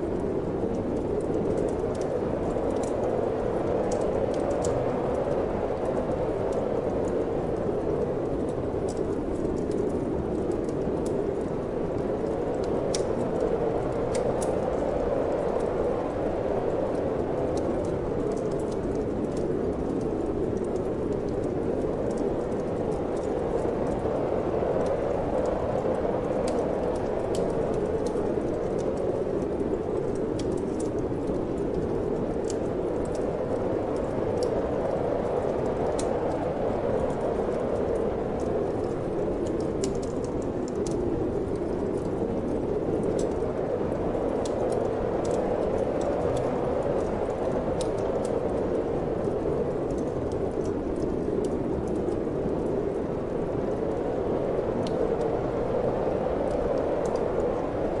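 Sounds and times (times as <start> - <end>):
steady wind noise: 0.0 - 58.0
wood fire crackling: 0.0 - 58.0.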